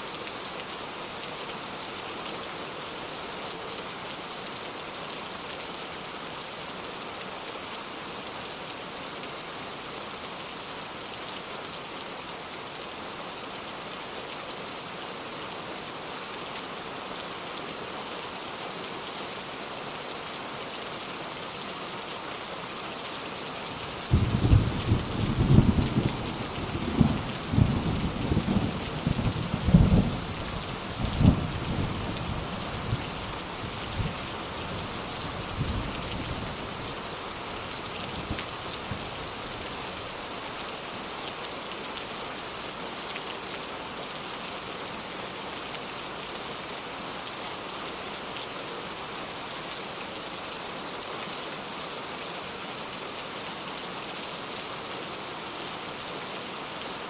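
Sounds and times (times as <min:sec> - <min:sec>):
steady rain: 0:00.0 - 0:57.0
thunder rumbling: 0:24.1 - 0:30.2.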